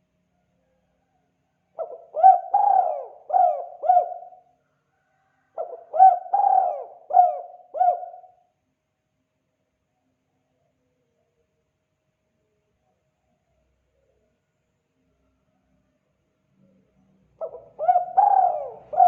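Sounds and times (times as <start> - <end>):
dove cooing: 1.8 - 4.5, 5.5 - 8.4, 17.4 - 19.0.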